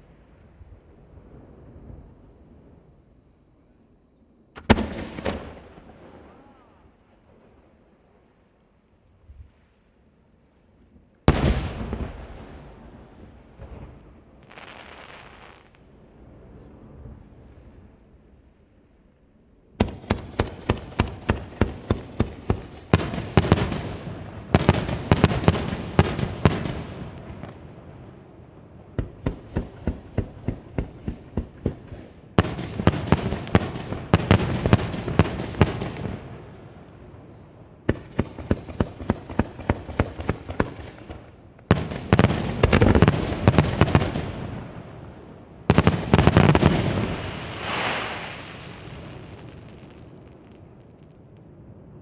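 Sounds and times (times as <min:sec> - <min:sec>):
fireworks bangs: 0:04.6 - 0:06.8, 0:11.2 - 0:15.8, 0:19.8 - 0:27.9, 0:28.9 - 0:51.6.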